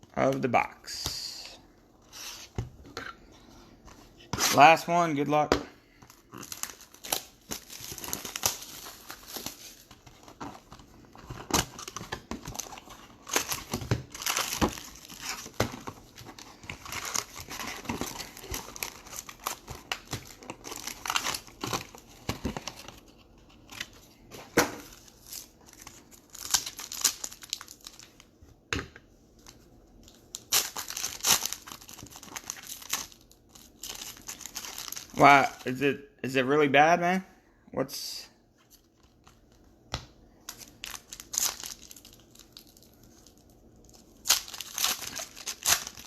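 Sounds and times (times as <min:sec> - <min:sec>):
foil wrapper crinkling and tearing: 0:06.1 - 0:22.9, 0:24.9 - 0:28.2, 0:30.3 - 0:35.8, 0:40.5 - 0:46.0.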